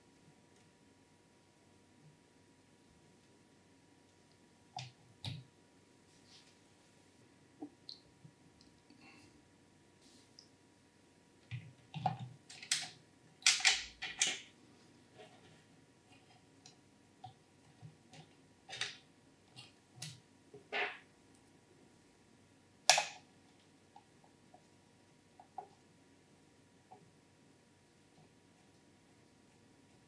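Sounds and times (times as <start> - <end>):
clicks and snaps of computer parts: 12.0 - 14.5, 22.9 - 23.2.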